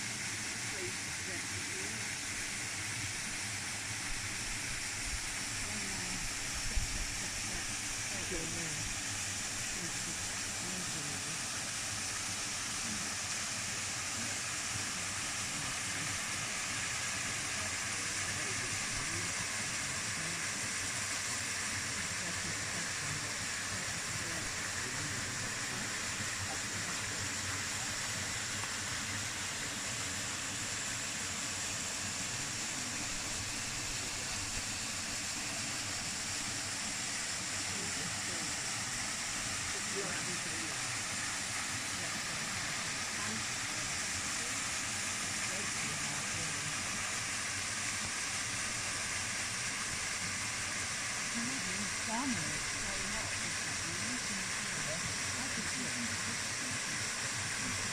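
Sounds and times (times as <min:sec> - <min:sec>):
waterfall rushing: 0:21.7 - 0:57.9.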